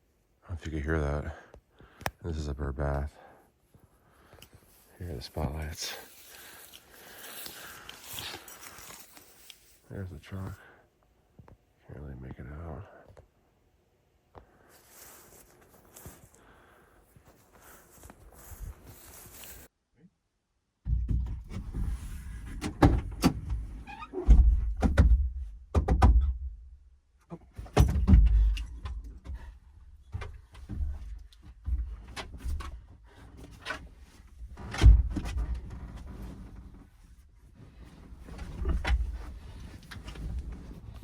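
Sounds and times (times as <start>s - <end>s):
scraping of objects moved: 4.6s - 10.6s, 17.3s - 19.7s
objects knocking and thumping: 20.8s - 23.3s, 24.3s - 26.4s, 27.6s - 29.4s.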